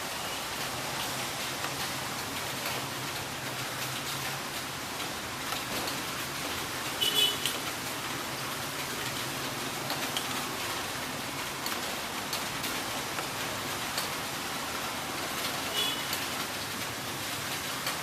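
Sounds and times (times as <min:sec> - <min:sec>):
heavy rain hiss: 0:00.0 - 0:18.0
raindrops ticking: 0:00.1 - 0:18.0.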